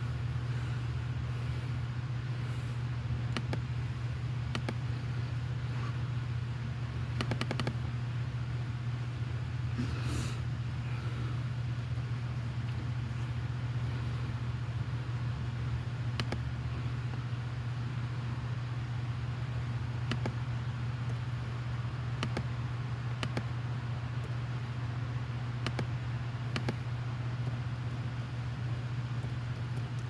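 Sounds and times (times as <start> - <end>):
sharp clicks: 3.3 - 3.7, 4.5 - 4.8, 7.2 - 7.8, 16.2 - 16.5, 20.0 - 20.4, 22.2 - 23.6, 25.6 - 28.0.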